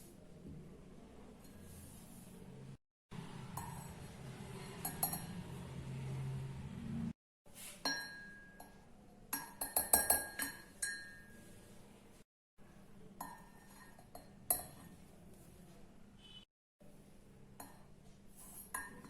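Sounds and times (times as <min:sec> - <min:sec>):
spoon clinking against mug: 0:04.8 - 0:05.4, 0:09.4 - 0:11.4.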